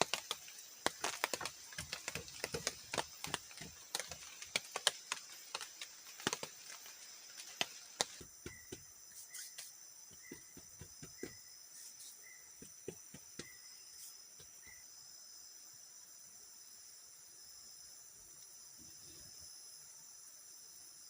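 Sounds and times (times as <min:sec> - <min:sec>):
insects buzzing high-pitched: 0:00.0 - 0:21.0.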